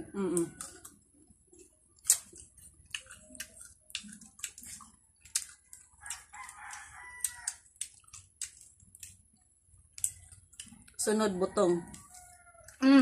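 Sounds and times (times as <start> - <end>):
crunchy fruit being chewed: 0.0 - 13.0
rooster crowing: 6.0 - 7.7.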